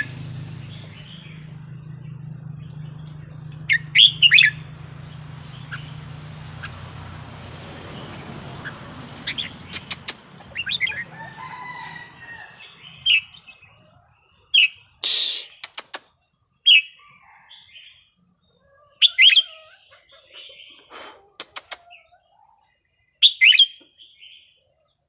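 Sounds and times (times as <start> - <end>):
bird whistled song: 3.5 - 4.6, 23.2 - 24.5
sharp clicks: 9.7 - 10.4, 15.0 - 16.1, 21.4 - 21.8.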